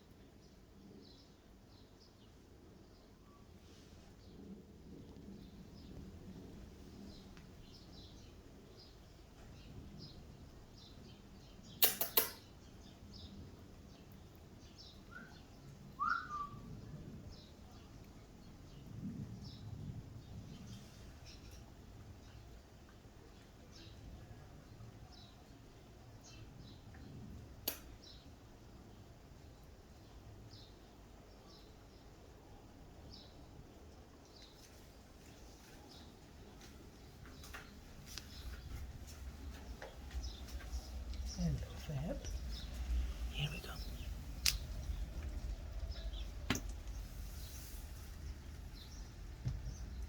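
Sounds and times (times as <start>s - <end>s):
sharp click: 11.8s - 12.5s, 27.6s - 27.9s
sharp clicks: 11.8s - 12.5s, 27.6s - 27.9s, 44.4s - 45.5s
faint bird chirps: 14.6s - 17.9s, 38.1s - 50.0s
low background rumble: 36.4s - 50.0s.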